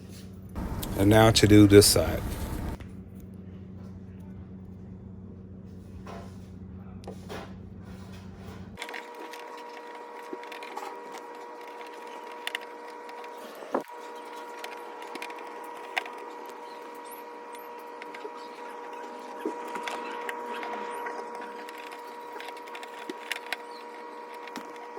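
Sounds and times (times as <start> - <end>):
higher-pitched hum: 0.6 - 2.8
steady low hum: 0.6 - 5.7.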